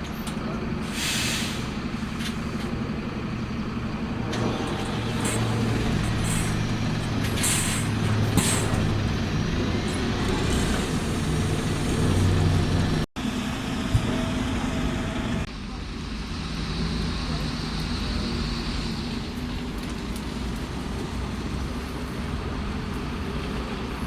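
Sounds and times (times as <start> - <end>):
bus engine humming: 0.0 - 24.0
air brake hisses: 0.8 - 2.4, 4.4 - 9.0.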